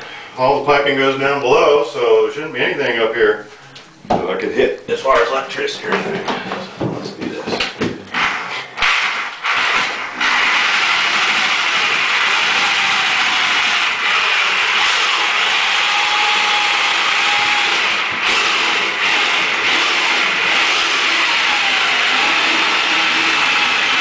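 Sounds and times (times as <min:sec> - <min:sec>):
power saw cutting drywall: 0:08.1 - 0:24.0.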